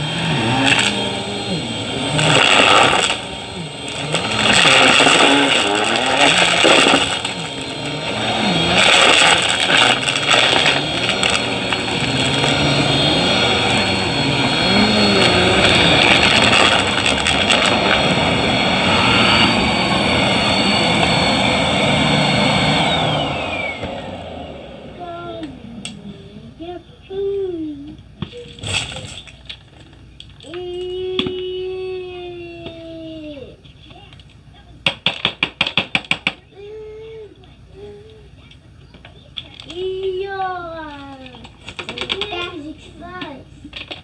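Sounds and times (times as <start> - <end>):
vacuum motor spinning down: 0.0 - 26.9
vacuum cleaner running: 0.0 - 27.0.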